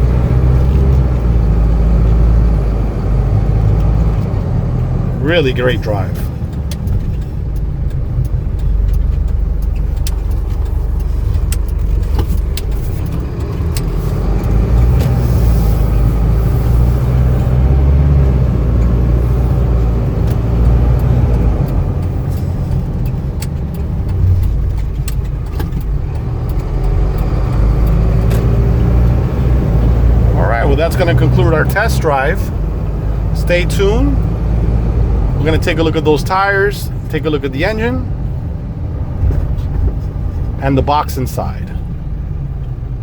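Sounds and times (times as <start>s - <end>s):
diesel engine rumble: 0.0s - 43.0s
road noise: 0.0s - 43.0s
light ticks and rattles: 6.0s - 33.2s.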